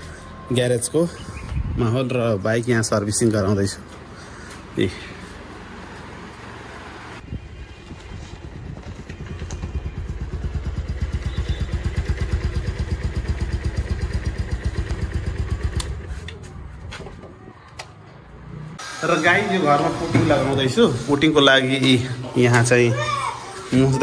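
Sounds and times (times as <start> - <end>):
motorcycle engine idling: 7.3 - 16.2.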